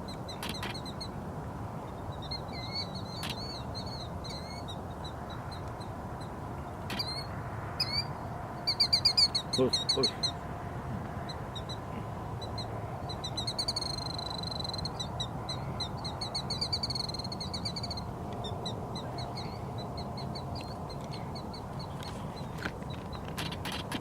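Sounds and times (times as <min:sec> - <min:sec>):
birds chattering: 0:06.9 - 0:10.4, 0:11.2 - 0:24.0.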